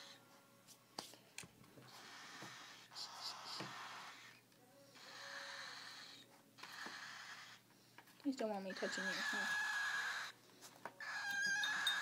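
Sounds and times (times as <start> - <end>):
bird chick hissing: 1.9 - 4.3.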